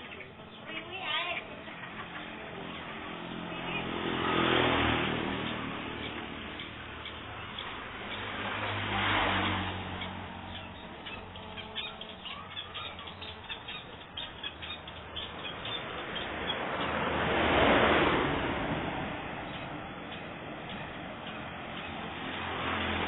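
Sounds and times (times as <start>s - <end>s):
vehicles passing: 0.0s - 23.0s
shrike calling in sharp notes: 10.5s - 15.8s.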